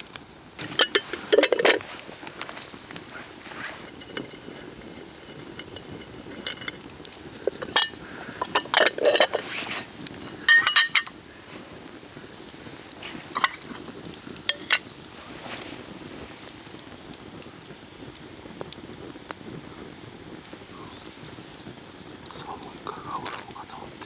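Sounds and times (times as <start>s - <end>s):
metal cookware clinking: 0.6s - 9.9s, 10.5s - 11.2s, 13.1s - 13.8s, 14.4s - 14.9s.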